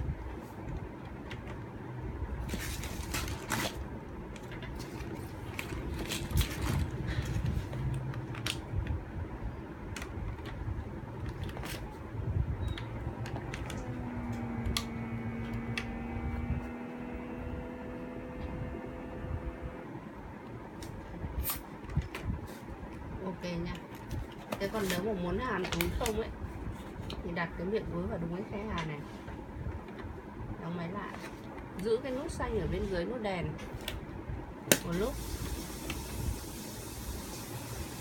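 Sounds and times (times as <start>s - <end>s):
plastic bag rustling: 2.4s - 8.4s
vacuum pump humming: 11.1s - 20.4s.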